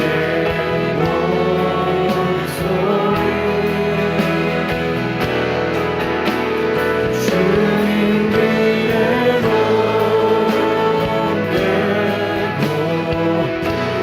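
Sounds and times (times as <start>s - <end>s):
guitar: 0.0s - 14.0s
worship song singing: 0.0s - 14.0s.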